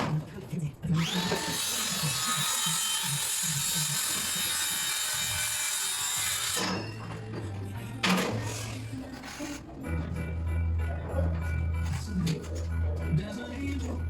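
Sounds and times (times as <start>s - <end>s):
power saw cutting timber: 1.0s - 7.1s.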